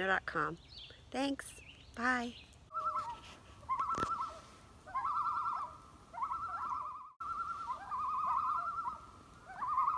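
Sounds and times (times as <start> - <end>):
bird calling: 1.6 - 9.9.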